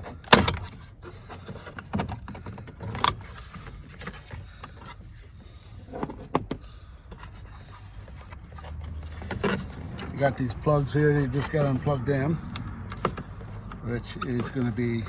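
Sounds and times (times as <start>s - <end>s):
plastic trim panel clicks and knocks: 0.0s - 0.9s, 5.9s - 7.2s, 12.5s - 15.0s.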